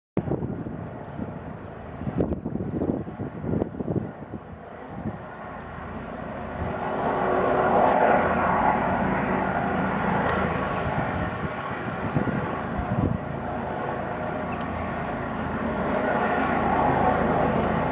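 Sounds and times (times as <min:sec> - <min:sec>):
helicopter engine and rotor: 0:00.2 - 0:17.9
low buffeting: 0:05.9 - 0:13.6.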